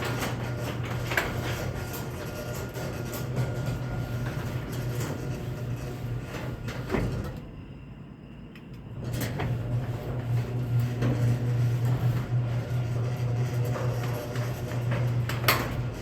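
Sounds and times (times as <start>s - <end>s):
garage door opener motor hum: 0.0s - 7.7s, 8.6s - 16.0s
garage door opener click: 8.6s - 16.0s.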